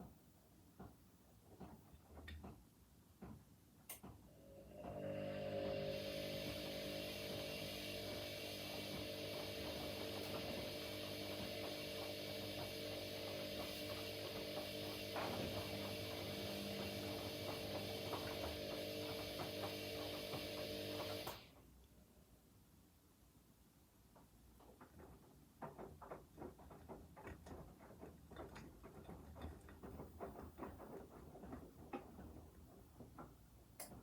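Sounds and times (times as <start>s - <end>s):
washing machine motor hum: 4.0s - 21.6s.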